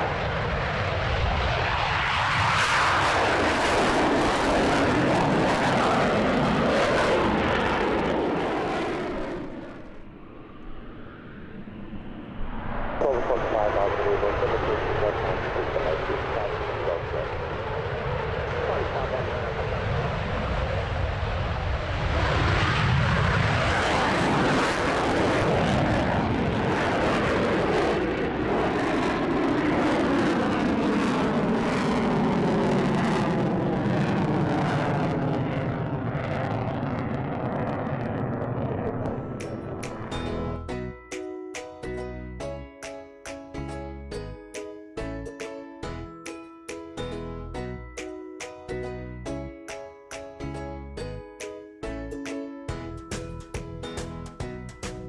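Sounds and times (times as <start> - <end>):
aircraft engine noise: 0.0 - 40.7.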